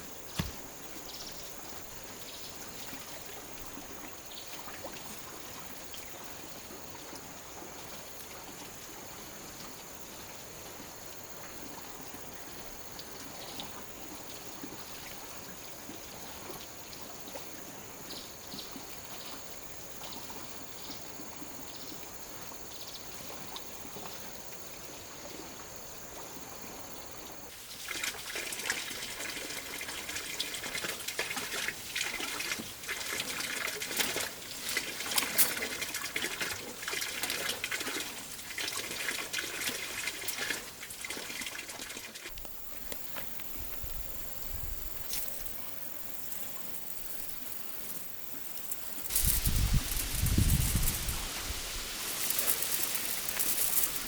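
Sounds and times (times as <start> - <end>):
crackling splashing with clicks: 27.8 - 43.3, 51.8 - 54.0
water trickling: 48.2 - 54.0.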